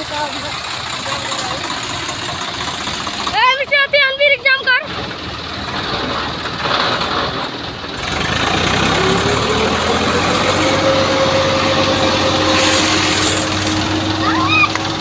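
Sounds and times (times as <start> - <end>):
diesel tractor engines rumbling: 0.0 - 15.0
engine revving up: 5.7 - 15.0.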